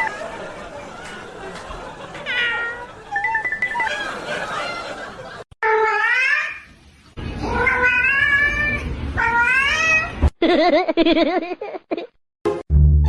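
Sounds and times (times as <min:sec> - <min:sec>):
cat meowing: 0:02.3 - 0:03.2, 0:07.4 - 0:10.1.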